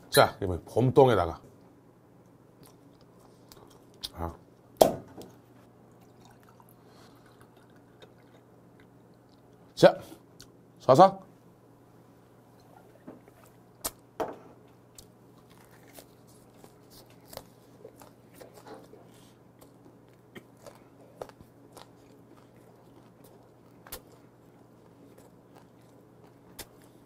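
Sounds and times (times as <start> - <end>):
close chewing: 5.9 - 9.6, 14.9 - 27.0
crunching vegetables: 14.9 - 27.0.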